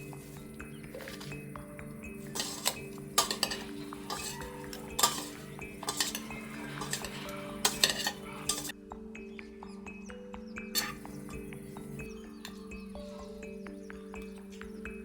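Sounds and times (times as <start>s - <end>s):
metal utensils clinking on dishes: 0.0s - 1.4s, 2.2s - 8.8s, 10.7s - 11.4s
soft background music: 0.0s - 15.0s.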